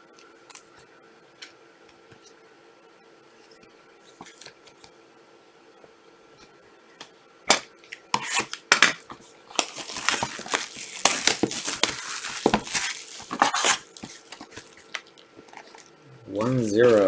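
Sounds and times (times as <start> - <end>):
card pack wrapping crinkling: 9.5 - 17.0.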